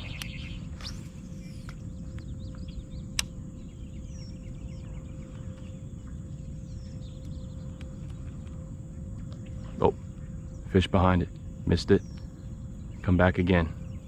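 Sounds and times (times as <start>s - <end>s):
birds chirping: 0.0s - 14.0s
steady low rumble: 0.0s - 14.0s
sharp click: 3.1s - 3.4s.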